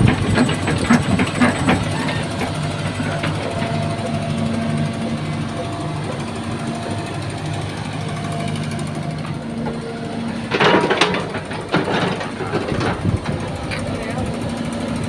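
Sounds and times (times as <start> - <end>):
excavator diesel engine running: 0.0 - 15.0
metallic clanks and scrapes: 10.4 - 13.8.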